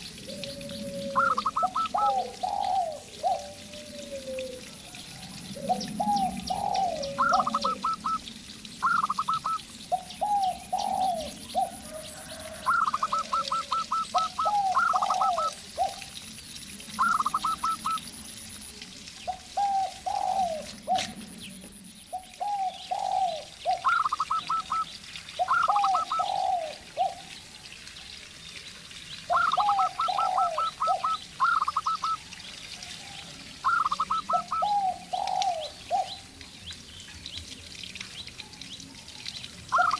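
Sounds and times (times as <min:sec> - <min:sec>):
doves cooing: 0:00.1 - 0:16.2, 0:16.9 - 0:18.1, 0:19.3 - 0:21.5, 0:22.1 - 0:27.4, 0:29.3 - 0:32.2, 0:33.0 - 0:36.4.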